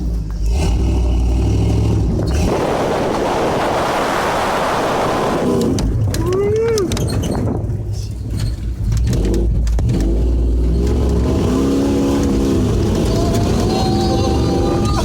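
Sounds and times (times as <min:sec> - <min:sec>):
truck engine rumbling: 0:00.0 - 0:15.0
knocks and clatter: 0:05.6 - 0:11.3.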